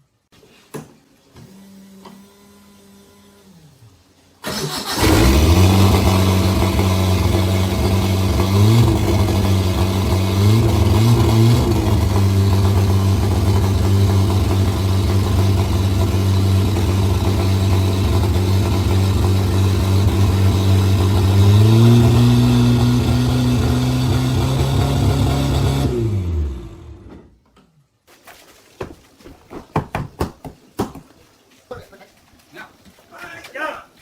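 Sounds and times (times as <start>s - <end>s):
jet ski engine running: 5.0s - 27.2s.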